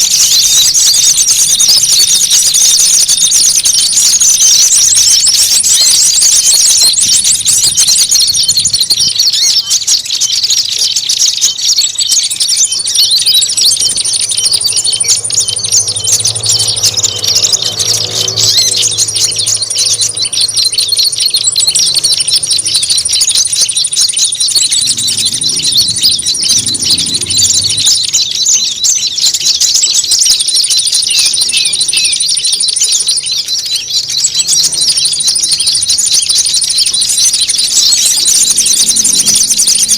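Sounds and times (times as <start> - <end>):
songbirds chirping: 0.0 - 39.9
thin high bird trill: 0.0 - 39.9.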